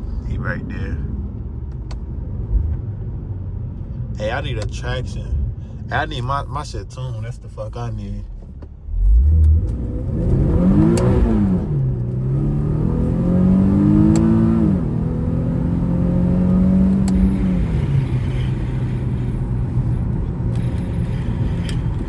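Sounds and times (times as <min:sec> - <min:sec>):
car engine accelerating with upshifts: 0:08.4 - 0:22.0.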